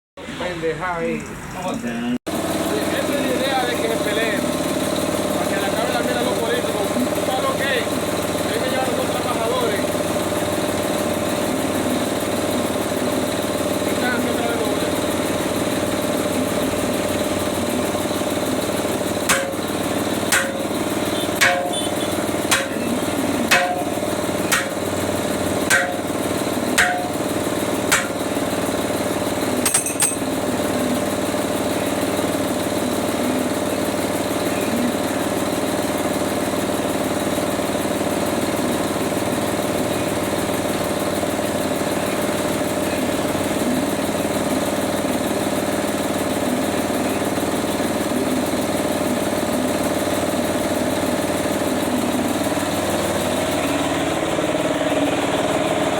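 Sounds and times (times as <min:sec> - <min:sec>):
engine idling: 0:02.3 - 0:55.9
hammer blows: 0:19.3 - 0:19.6, 0:20.3 - 0:20.7, 0:21.3 - 0:22.8, 0:23.4 - 0:24.8, 0:25.7 - 0:26.1, 0:26.8 - 0:27.2.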